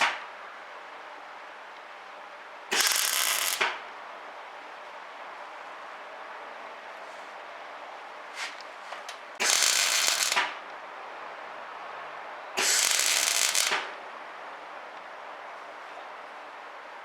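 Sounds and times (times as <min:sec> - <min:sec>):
welder arcing and crackling: 0:02.7 - 0:03.8, 0:09.4 - 0:10.6, 0:12.6 - 0:13.9.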